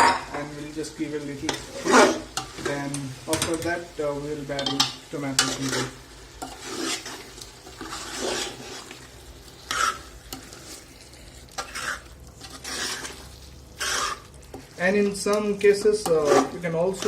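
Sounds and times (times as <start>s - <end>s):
faint frying sizzle: 0.0s - 17.0s
spoon scraping a pot: 1.5s - 2.7s, 4.6s - 17.0s.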